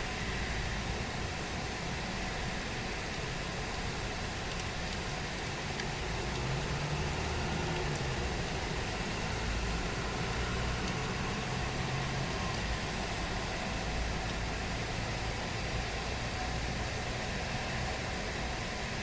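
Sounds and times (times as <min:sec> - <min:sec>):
low engine-like hum: 0:00.0 - 0:19.0
rain falling: 0:01.7 - 0:16.0
faint drip ticks: 0:03.1 - 0:06.5, 0:07.1 - 0:08.6, 0:09.8 - 0:11.5, 0:12.4 - 0:13.2.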